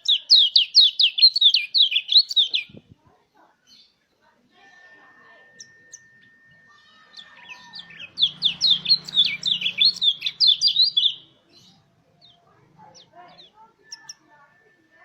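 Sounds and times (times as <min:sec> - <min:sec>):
bird singing sharp rolling notes: 0:05.3 - 0:14.4.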